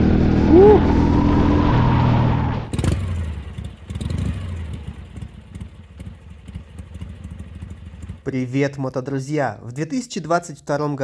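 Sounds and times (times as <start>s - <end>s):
motorcycle engine accelerating: 0.0s - 8.2s.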